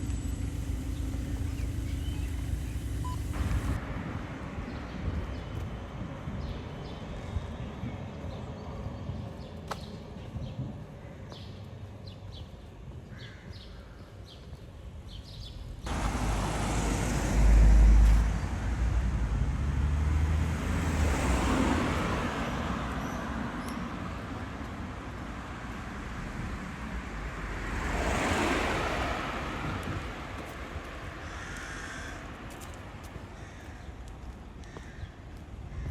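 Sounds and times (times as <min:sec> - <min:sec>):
vehicle passing with low rumble: 0:00.0 - 0:08.2, 0:15.4 - 0:32.5.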